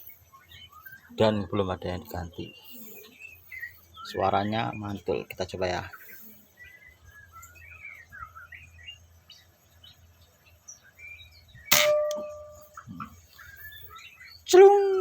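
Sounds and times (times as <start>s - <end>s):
birds chirping: 0.0s - 15.0s
air rifle shot: 11.7s - 12.8s
ringing tone: 11.7s - 13.1s.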